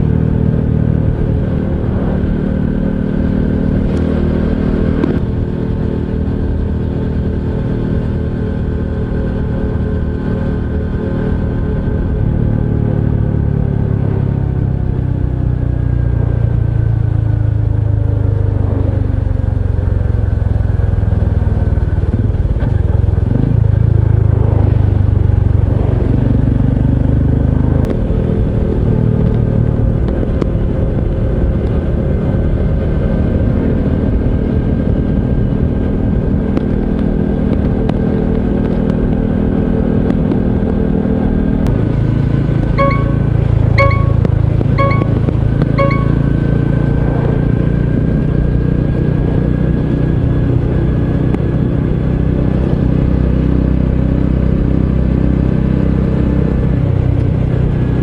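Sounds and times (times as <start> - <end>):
motorcycle engine running: 0.0 - 33.8.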